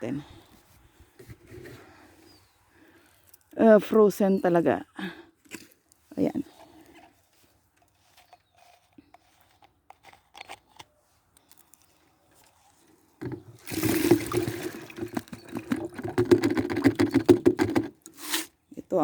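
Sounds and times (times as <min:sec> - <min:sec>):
sap pouring from container: 0:13.2 - 0:17.3, 0:18.0 - 0:18.5.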